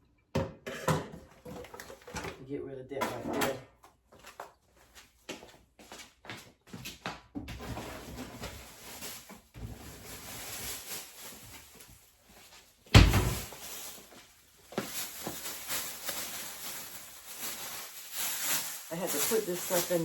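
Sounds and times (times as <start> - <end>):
clattering and rustling: 0.6 - 2.4, 7.5 - 12.0, 12.9 - 14.2
door shutting thump: 12.9 - 13.5.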